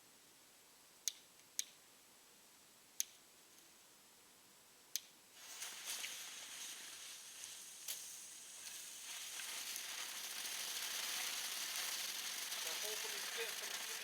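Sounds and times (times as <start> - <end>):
firework crackles: 5.4 - 14.0
firework sizzling hiss: 5.4 - 14.0.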